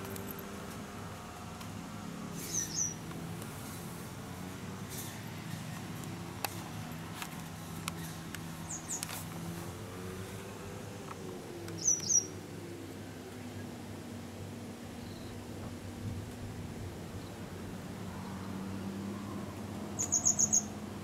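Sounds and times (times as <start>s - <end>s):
small bird chirping: 2.4s - 3.0s, 8.0s - 9.2s, 11.7s - 12.4s, 19.9s - 20.8s.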